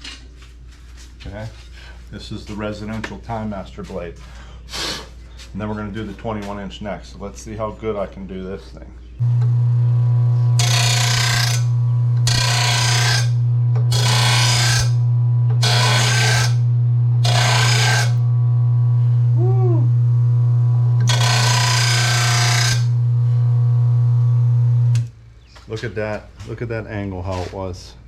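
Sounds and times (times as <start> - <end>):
blade grinding: 9.2 - 19.4, 20.6 - 25.1
sharpener motor humming: 9.2 - 20.0, 20.8 - 25.1.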